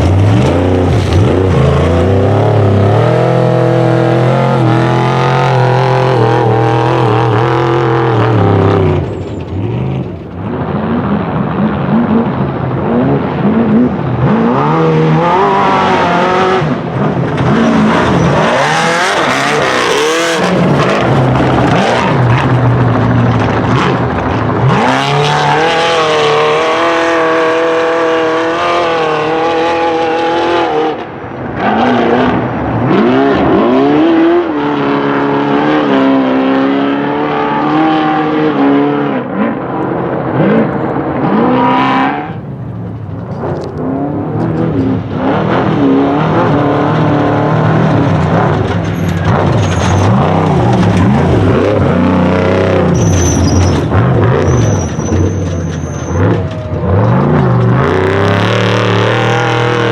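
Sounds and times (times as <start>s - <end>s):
truck engines revving: 0.0s - 59.9s.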